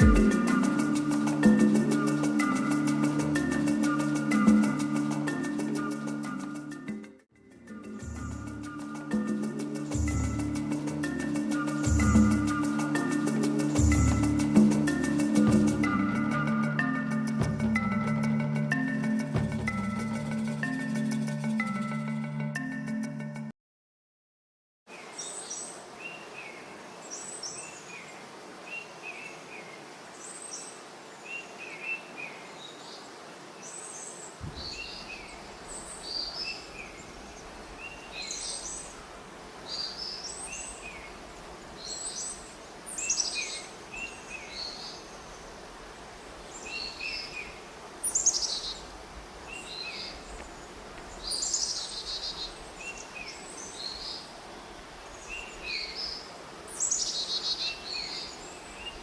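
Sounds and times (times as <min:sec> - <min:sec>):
steady background hiss: 0:00.0 - 0:19.5, 0:24.9 - 0:59.0
birds chirping and calling: 0:33.8 - 0:39.0, 0:49.5 - 0:54.3, 0:55.2 - 0:59.0.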